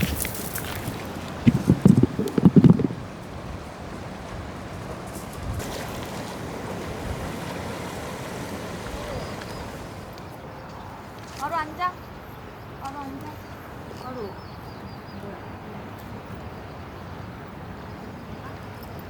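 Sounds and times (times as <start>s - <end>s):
ocean waves washing on shore: 0.0s - 11.8s.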